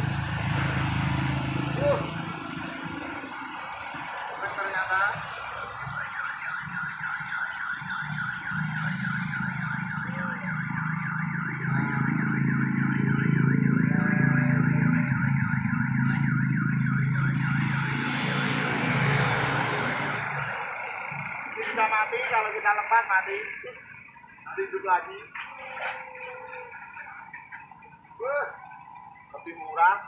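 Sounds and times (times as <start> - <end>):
water pump whining: 0.0 - 23.4, 25.3 - 30.0
water spray hissing: 25.3 - 28.2.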